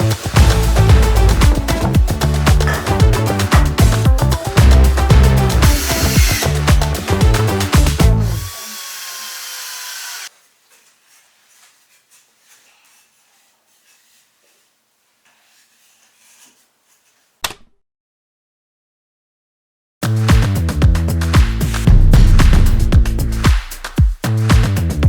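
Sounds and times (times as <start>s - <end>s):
steady hiss: 0.0s - 17.4s
sharp knock: 21.4s - 24.7s.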